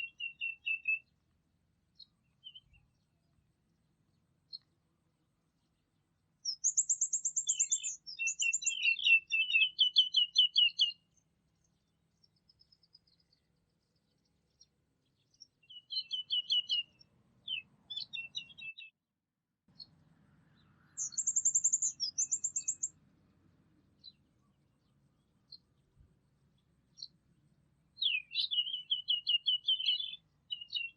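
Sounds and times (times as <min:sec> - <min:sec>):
songbirds trilling: 0:00.0 - 0:01.2, 0:05.6 - 0:18.9, 0:19.7 - 0:23.0, 0:28.0 - 0:30.9.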